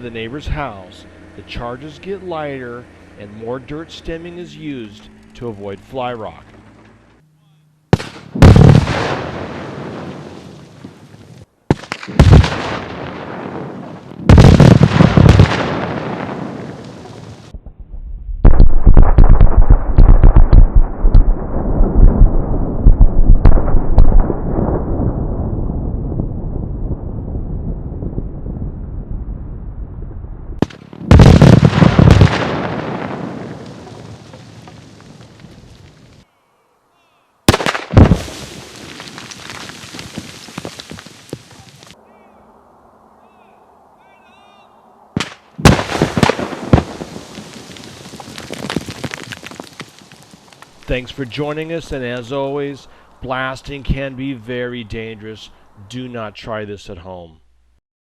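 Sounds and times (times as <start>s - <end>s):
rock blast bangs: 7.9s - 10.6s, 11.7s - 28.8s, 30.6s - 36.1s, 37.5s - 42.0s, 45.2s - 51.1s.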